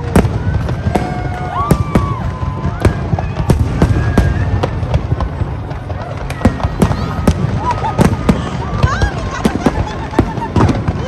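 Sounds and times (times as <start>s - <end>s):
low rumble of explosions: 0.0s - 11.0s.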